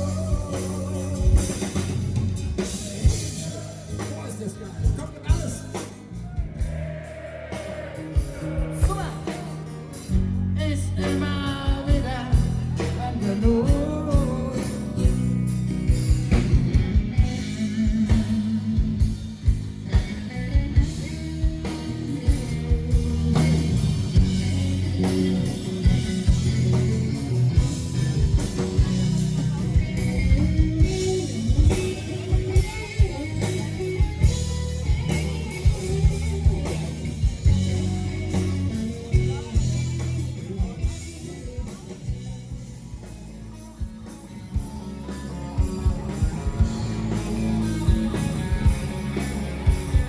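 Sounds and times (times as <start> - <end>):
bass guitar: 0.0 - 50.0
guitar: 0.0 - 50.0
steady drum beat: 0.0 - 50.0.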